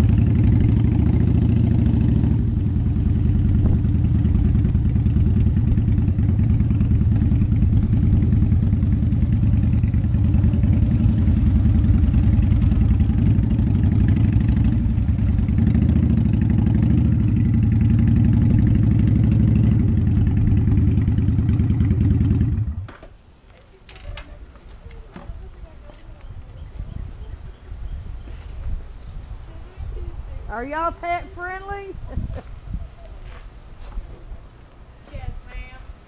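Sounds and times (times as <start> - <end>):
motorcycle engine idling: 0.0 - 22.9, 23.5 - 28.2.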